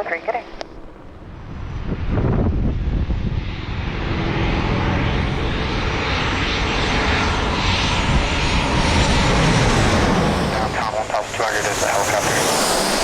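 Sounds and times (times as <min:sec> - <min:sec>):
airplane engine rumble and hiss: 0:00.0 - 0:13.0.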